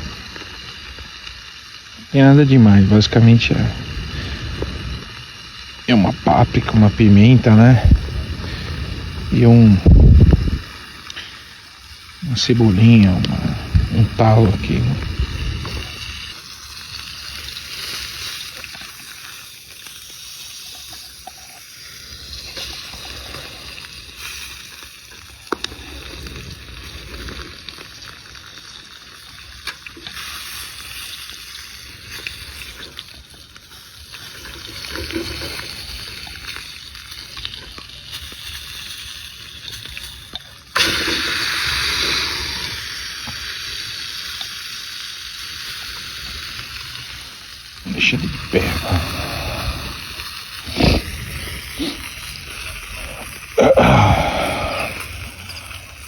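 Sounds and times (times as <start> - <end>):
loud sizzle: 0.0 - 56.0.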